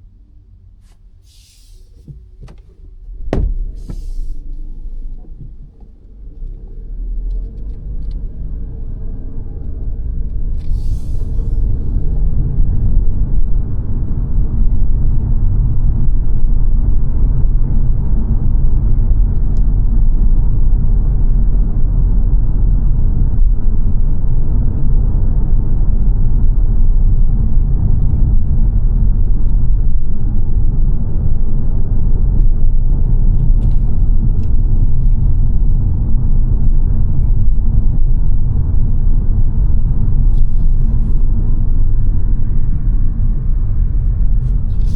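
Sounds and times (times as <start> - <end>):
car cabin road and engine rumble: 0.0 - 44.9.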